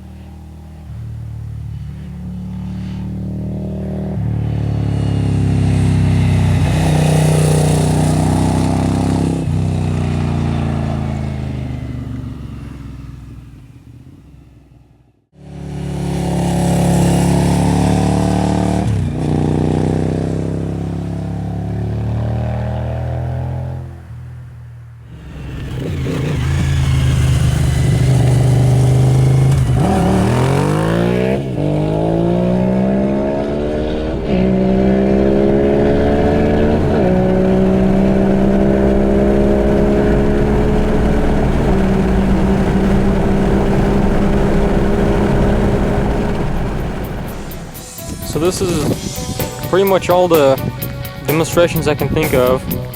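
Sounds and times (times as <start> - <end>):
motorcycle passing by: 0.0 - 52.9.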